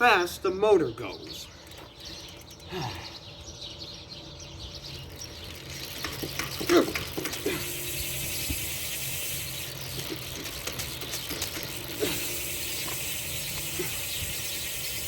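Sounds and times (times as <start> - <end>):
bicycle wheel ratcheting: 1.6 - 2.8, 4.8 - 15.0.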